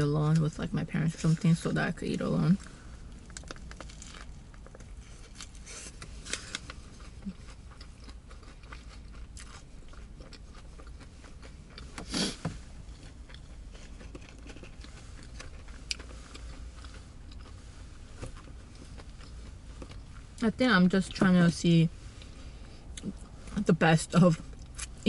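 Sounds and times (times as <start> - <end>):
person chewing a sandwich: 2.6 - 20.4, 24.4 - 25.0.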